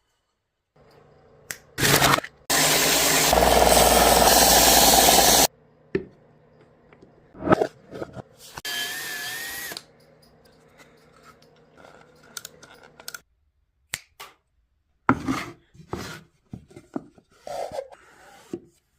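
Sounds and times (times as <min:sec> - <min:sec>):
power drill whining: 0:01.8 - 0:05.5, 0:08.6 - 0:09.9.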